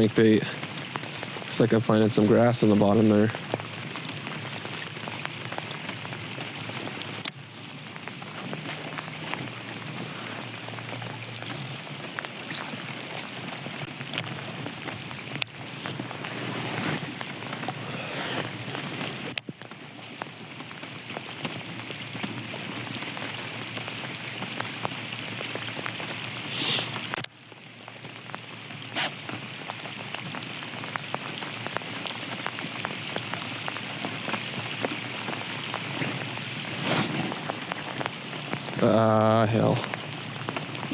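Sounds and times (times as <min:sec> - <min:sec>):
rain pattering: 0:00.0 - 0:40.9
small clicks and knocks: 0:04.2 - 0:09.5.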